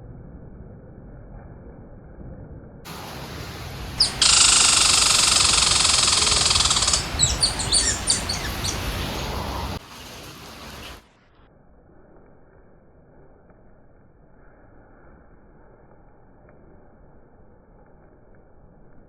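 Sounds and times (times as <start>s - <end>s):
bird trilling: 4.0s - 9.8s
short sharp bird chirps: 4.0s - 9.8s.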